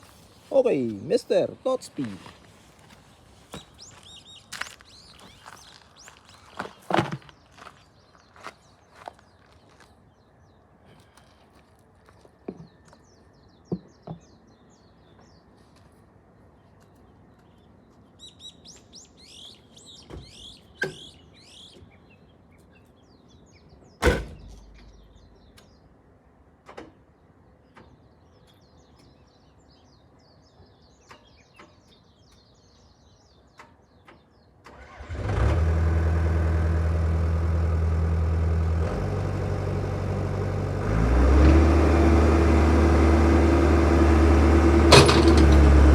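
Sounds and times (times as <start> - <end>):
birds chirping: 0.0 - 26.4, 27.0 - 35.0
diesel engine running: 34.8 - 45.9.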